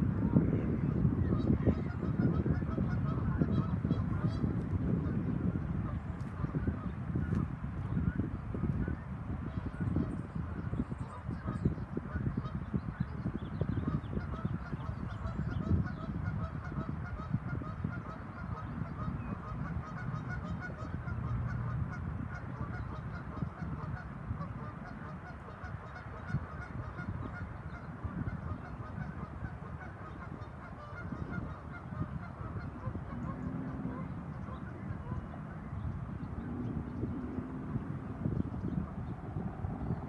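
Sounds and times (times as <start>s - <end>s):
geese honking: 1.3s - 7.0s, 13.8s - 35.7s.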